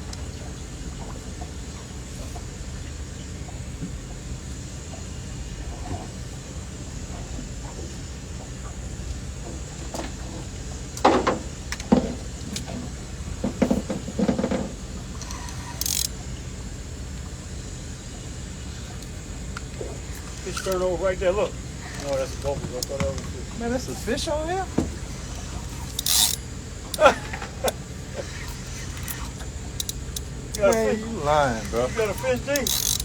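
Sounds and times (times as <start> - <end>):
low boat rumble: 0.0 - 33.0
sharp knocks and clattering: 13.4 - 15.8.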